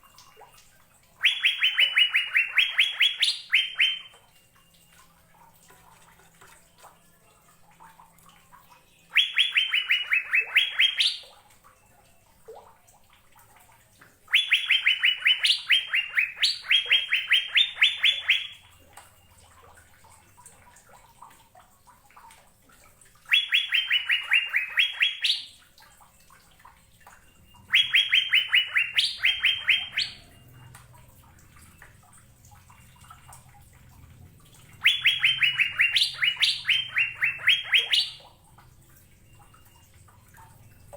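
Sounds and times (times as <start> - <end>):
bird singing repeated notes: 1.2 - 4.9, 8.8 - 11.4, 14.3 - 19.4, 23.3 - 25.7, 27.2 - 38.4.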